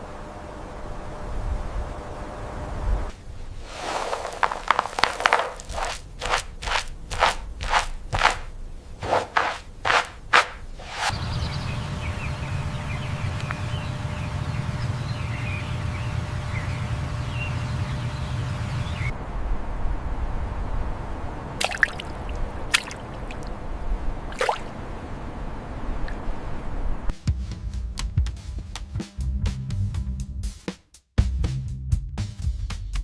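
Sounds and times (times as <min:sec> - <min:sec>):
steady low hum: 0:00.0 - 0:27.1
crunching impacts: 0:03.6 - 0:11.1.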